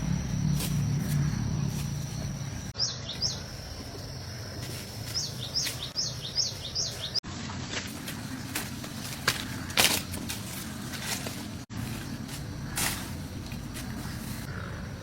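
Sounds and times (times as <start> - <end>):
bird chirping: 0.0 - 4.5, 5.1 - 7.2
high insect trill: 0.0 - 7.0.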